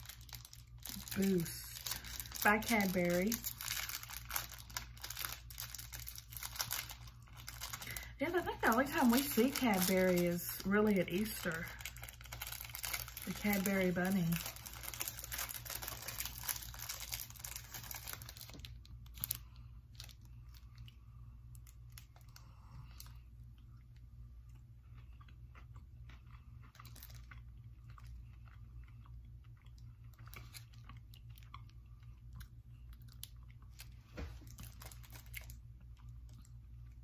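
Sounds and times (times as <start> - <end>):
wrapper crinkling: 0.0 - 20.8, 26.8 - 27.3, 33.2 - 35.6
chewing and crunching chocolate bar: 0.0 - 37.0
steady low hum: 0.0 - 37.0.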